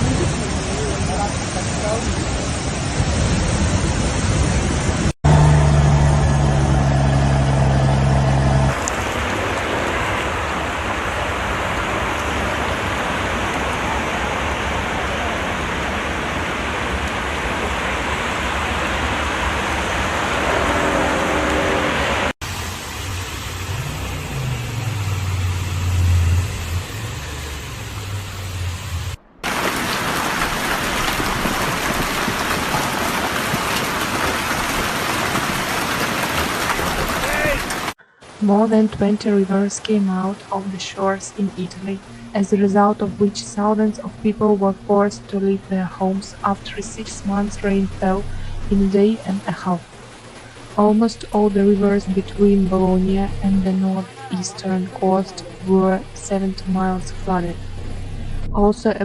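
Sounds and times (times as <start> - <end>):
rushing floodwater: 0.0 - 6.5, 7.4 - 28.7, 29.4 - 58.5
heavy rain: 0.0 - 59.0
vehicle engine humming: 5.2 - 10.0, 11.2 - 29.7, 43.0 - 59.0.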